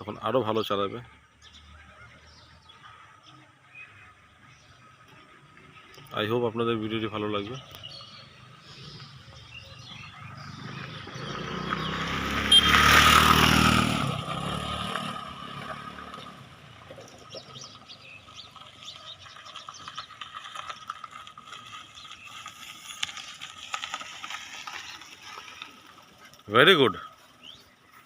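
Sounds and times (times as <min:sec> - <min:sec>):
car driving past: 0:08.2 - 0:19.0
faint scattered crackles: 0:16.8 - 0:28.0.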